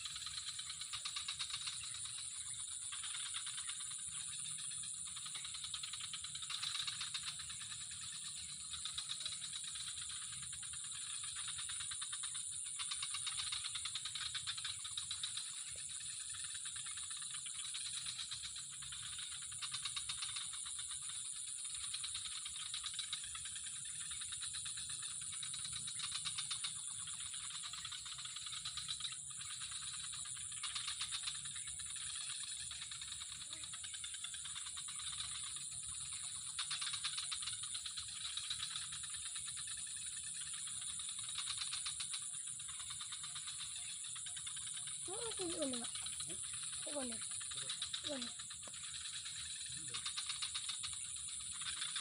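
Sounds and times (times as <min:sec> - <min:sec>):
insects calling: 0:00.0 - 0:52.0.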